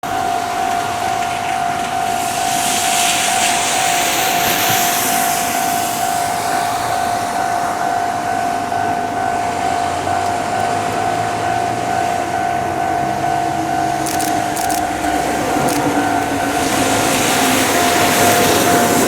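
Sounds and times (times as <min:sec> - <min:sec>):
electric train whine: 0:00.0 - 0:19.0
sharp clicks: 0:14.0 - 0:16.0.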